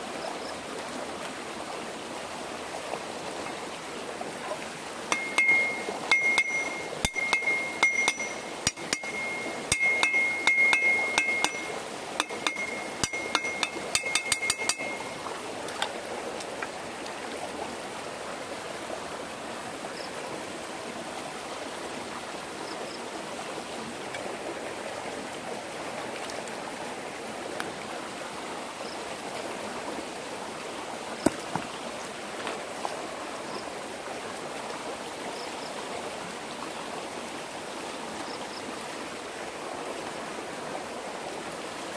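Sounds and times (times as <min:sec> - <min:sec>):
stream water flowing: 0:00.0 - 0:41.9
rapid ringing metallic tapping: 0:05.1 - 0:15.3.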